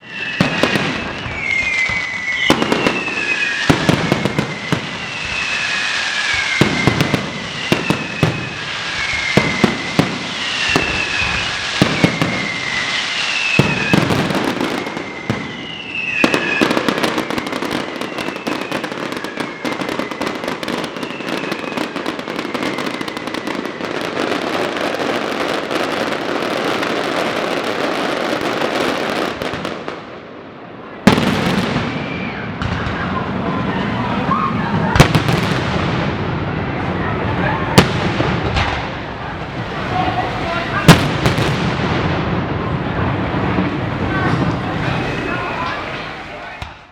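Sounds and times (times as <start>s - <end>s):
falling firework whistles: 0.0s - 30.2s, 31.0s - 46.9s
dense firework crackling: 0.0s - 46.9s
firework bangs: 0.0s - 46.9s.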